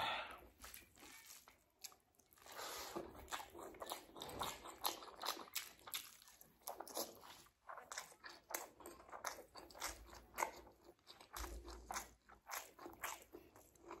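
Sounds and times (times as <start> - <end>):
chewing and lip-smacking: 0.6 - 14.0.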